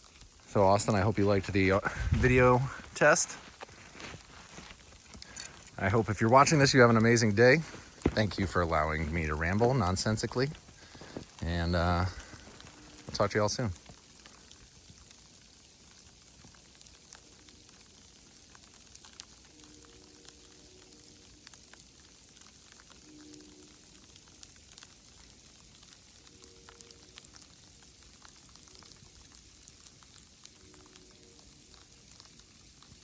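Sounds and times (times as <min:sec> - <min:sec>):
sleet pattering on leaves: 0:00.0 - 0:15.1
faint distant low tones: 0:00.5 - 0:13.9.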